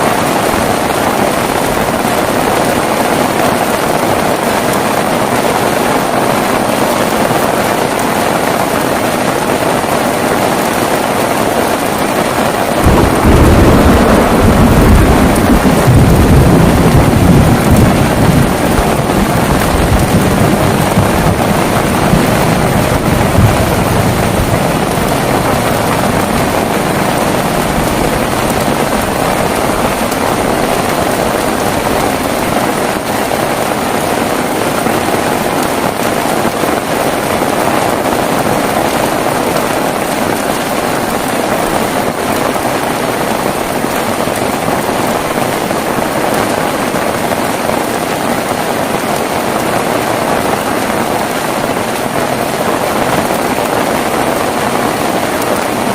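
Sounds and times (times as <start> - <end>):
heavy rain: 0.0 - 55.9
low rumble: 12.8 - 32.2.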